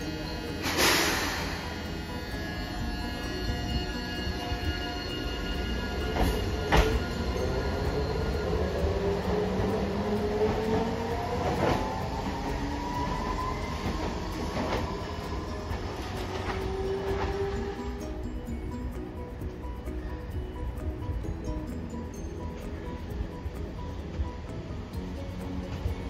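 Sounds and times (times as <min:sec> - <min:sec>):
tram motor whining: 0:00.0 - 0:26.0
wheels clacking over rail joints: 0:05.4 - 0:18.1.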